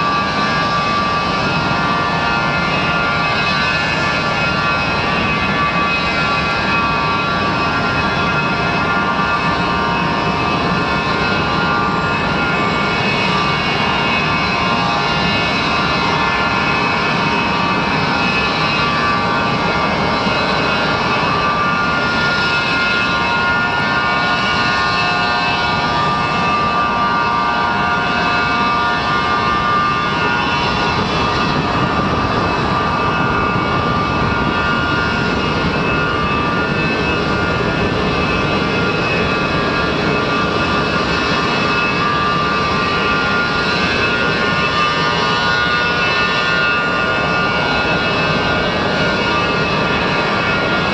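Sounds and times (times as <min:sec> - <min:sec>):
high engine whine: 0:00.0 - 0:50.9
jet engine roaring: 0:00.0 - 0:50.9.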